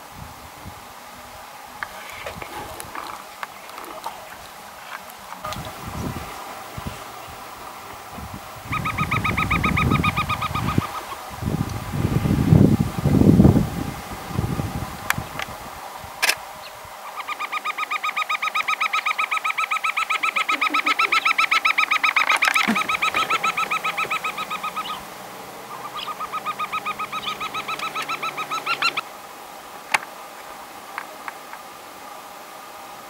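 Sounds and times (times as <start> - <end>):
bird whistling call: 8.7 - 11.2, 17.0 - 25.1, 25.7 - 29.0.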